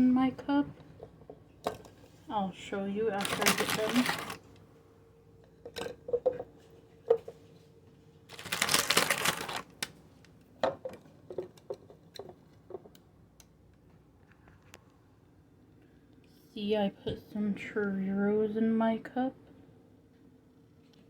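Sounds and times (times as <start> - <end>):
rustling: 3.2 - 4.4, 8.3 - 9.9.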